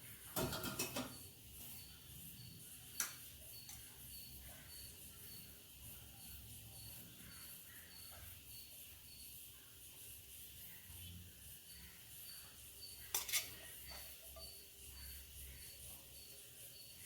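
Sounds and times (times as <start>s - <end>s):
insects chirping: 0.0s - 17.0s
tableware clinking: 0.4s - 1.2s, 13.1s - 14.5s.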